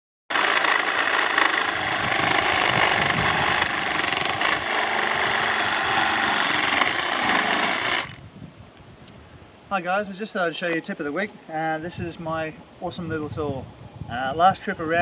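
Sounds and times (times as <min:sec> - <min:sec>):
reciprocating saw cutting wood: 0:00.3 - 0:08.2.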